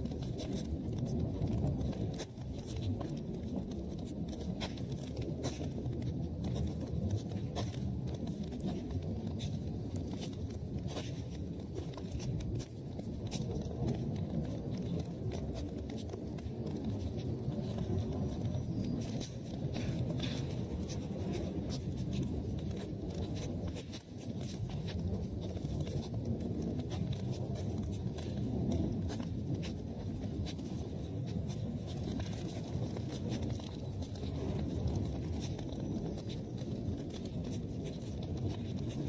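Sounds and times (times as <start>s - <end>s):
fire crackling and popping: 0.0s - 39.0s
low rumble of burning: 0.0s - 39.0s.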